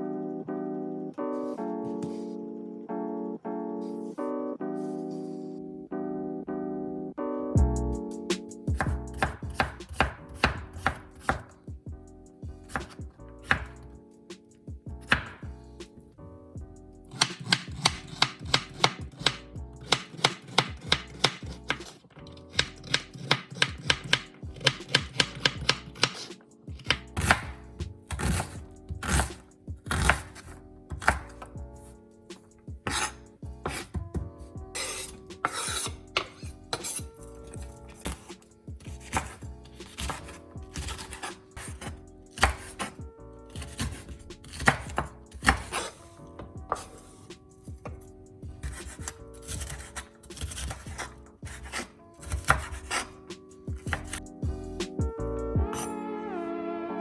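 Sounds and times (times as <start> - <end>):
knife chopping on cutting board: 8.7 - 11.5, 12.7 - 13.8, 15.0 - 15.5, 17.1 - 31.5, 32.8 - 47.1, 48.6 - 54.2.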